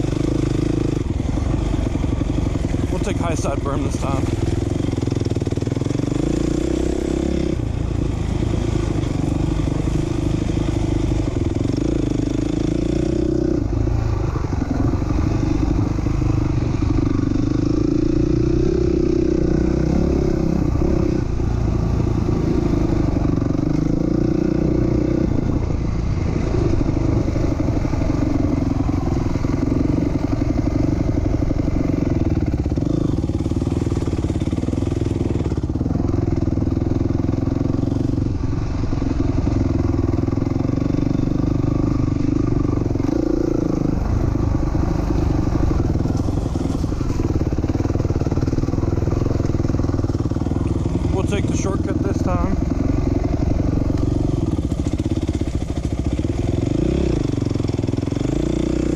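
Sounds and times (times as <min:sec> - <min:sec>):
motocross engine revving: 0:00.0 - 0:13.7, 0:39.2 - 0:58.9.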